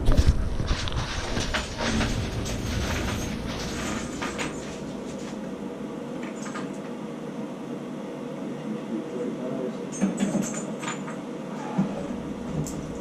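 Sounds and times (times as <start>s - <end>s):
parts and containers clattering: 0.0s - 5.5s.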